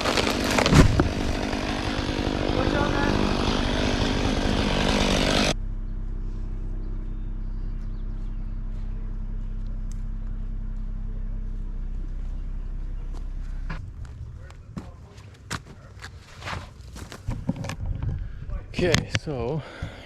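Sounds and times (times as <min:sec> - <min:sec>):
chainsaw running then idling: 0:00.0 - 0:05.6.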